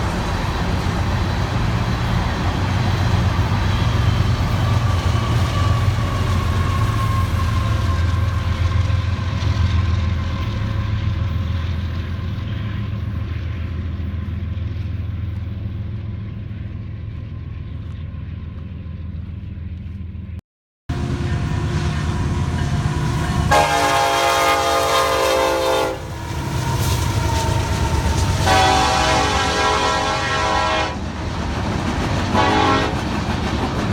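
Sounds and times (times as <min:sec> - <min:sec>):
diesel locomotive running: 0:00.0 - 0:33.9
freight train rumbling past: 0:00.0 - 0:33.9
train air horn blast: 0:20.9 - 0:26.2, 0:28.2 - 0:31.0, 0:32.4 - 0:33.0.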